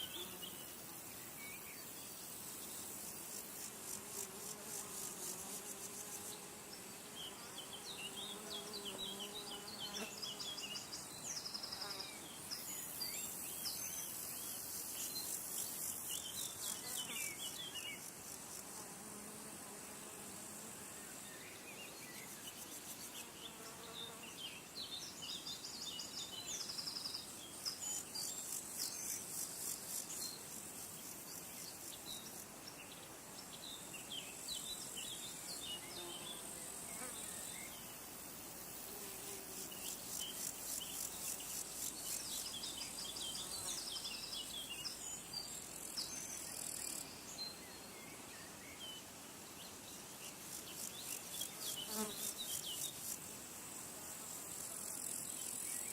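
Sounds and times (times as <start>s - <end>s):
insects trilling: 24.9s - 55.9s.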